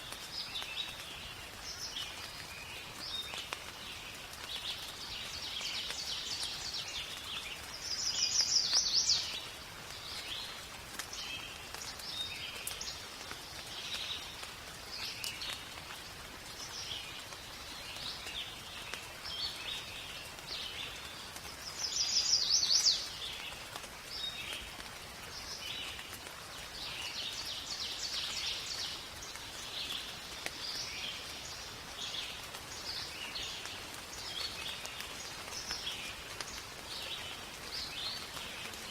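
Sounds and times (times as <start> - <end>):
faint rain hiss: 0.0 - 38.9
forest birds chirping and singing: 0.0 - 38.9.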